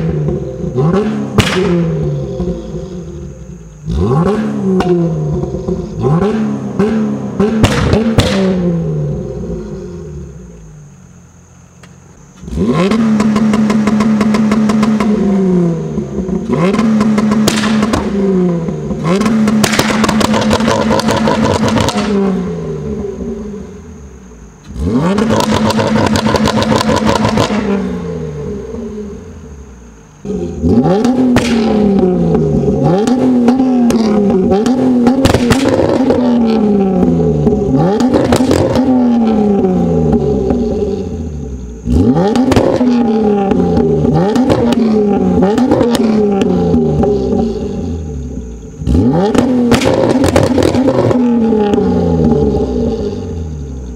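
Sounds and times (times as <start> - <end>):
car engine revving on limiter: 0.0 - 10.7, 12.4 - 24.0, 24.6 - 53.9
exhaust pops and cracks: 1.3 - 1.9, 7.4 - 8.6, 16.7 - 18.2, 19.0 - 22.1, 31.3 - 33.2, 33.9 - 36.2, 49.3 - 52.3.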